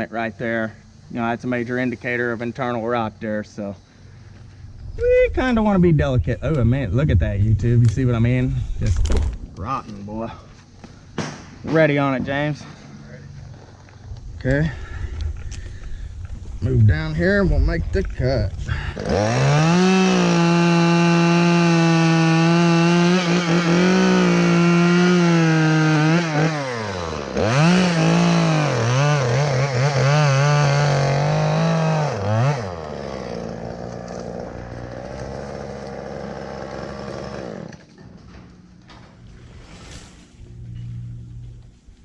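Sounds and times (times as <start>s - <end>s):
chainsaw cutting wood: 18.8s - 38.0s.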